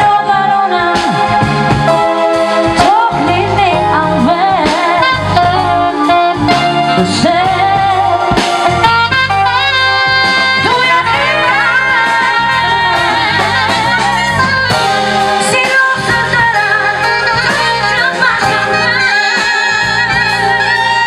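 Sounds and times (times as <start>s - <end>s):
bass: 0.0s - 21.0s
keyboard chords: 0.0s - 21.0s
lead melody line: 0.0s - 21.0s.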